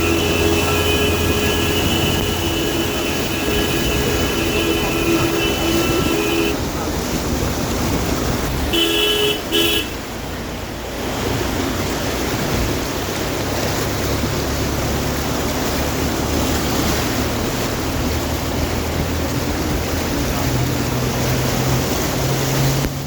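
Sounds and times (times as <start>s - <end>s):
vehicle horn: 0.0s - 6.6s, 8.7s - 10.1s
low engine hum: 0.0s - 23.0s
rushing floodwater: 0.0s - 23.0s.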